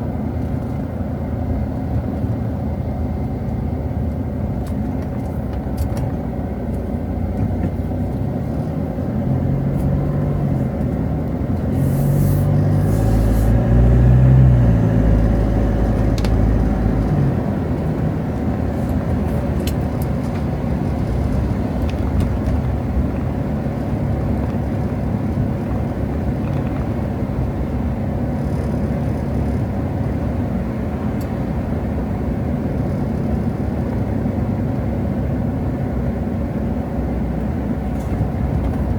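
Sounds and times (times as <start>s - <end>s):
street traffic: 0.0s - 38.9s
vehicle engine passing close: 8.1s - 35.6s.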